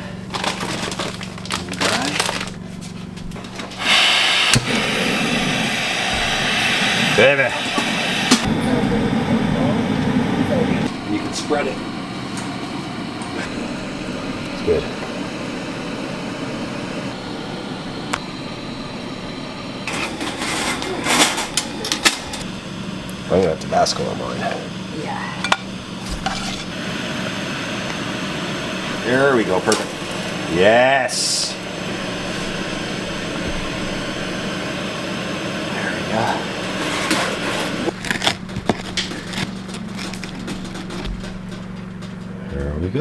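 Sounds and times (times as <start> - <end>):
rustling and scraping of kitchen things: 0.0 - 3.8, 19.9 - 22.4, 25.4 - 26.7, 36.8 - 42.6
steady hum: 0.0 - 43.0
packaging crinkling: 0.3 - 2.8, 37.9 - 41.0
loud rushing hiss: 3.7 - 38.0.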